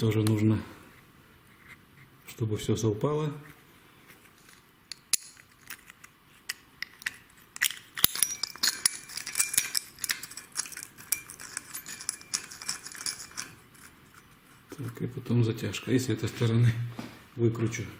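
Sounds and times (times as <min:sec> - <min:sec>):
metal washers and bolts clinking: 0:04.4 - 0:15.0.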